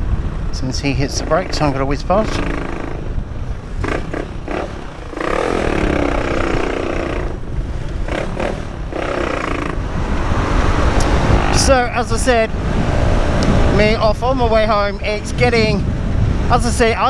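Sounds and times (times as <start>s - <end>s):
wind buffeting microphone: 0.0s - 17.0s
motorcycle engine revving: 0.8s - 14.0s.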